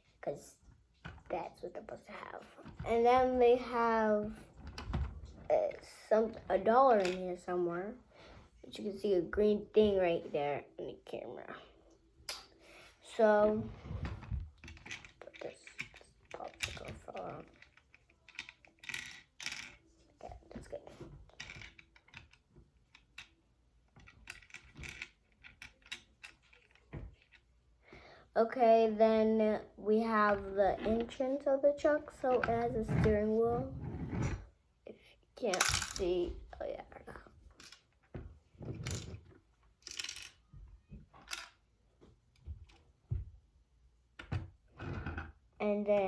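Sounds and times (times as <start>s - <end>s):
plastic pieces clicking and rattling: 14.6s - 27.5s, 35.5s - 36.1s, 39.8s - 40.5s, 41.2s - 41.6s.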